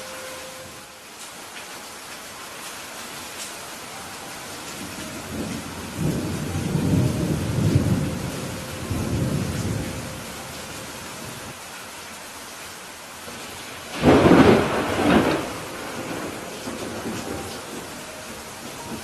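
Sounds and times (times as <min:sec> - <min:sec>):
steady rain: 0:00.0 - 0:19.0
thunder rumbling: 0:04.5 - 0:11.6, 0:13.9 - 0:19.0.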